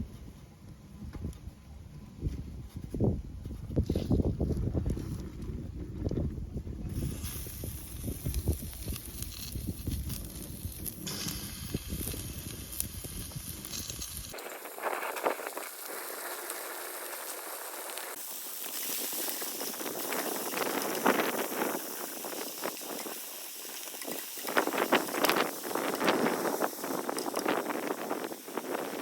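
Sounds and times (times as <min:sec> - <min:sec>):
wind rumble on microphone: 0:00.0 - 0:29.0
wood fire crackling and hissing: 0:06.1 - 0:29.0.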